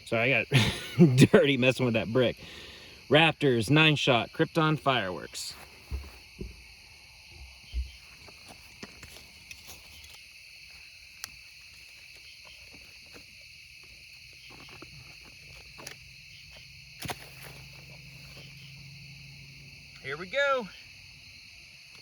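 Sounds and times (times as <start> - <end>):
night insects chirping: 0.0 - 22.0
thump: 5.9 - 6.7.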